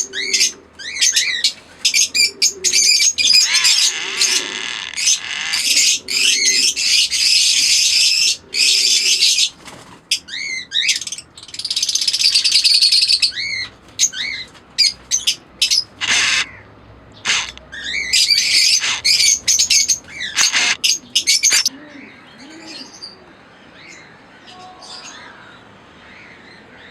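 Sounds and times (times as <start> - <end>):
parrots chattering and chirping: 0.3 - 9.3, 10.8 - 16.6, 17.2 - 21.7.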